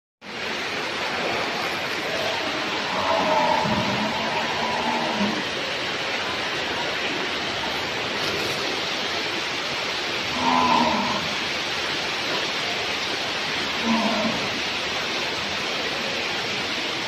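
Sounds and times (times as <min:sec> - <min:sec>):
steady hiss: 0:00.2 - 0:17.0
cattle mooing: 0:02.2 - 0:05.5, 0:10.3 - 0:11.3, 0:13.8 - 0:14.5.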